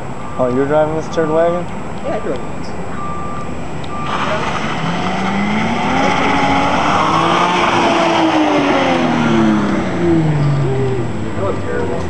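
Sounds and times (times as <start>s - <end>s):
car engine revving: 3.8s - 12.0s.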